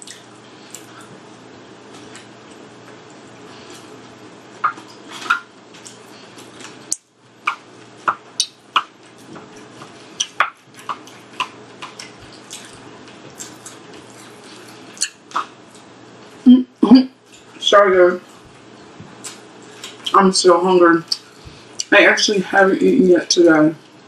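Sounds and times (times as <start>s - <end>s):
wet chewing and lip-smacking: 0.0s - 1.1s, 4.6s - 16.0s, 18.3s - 20.1s.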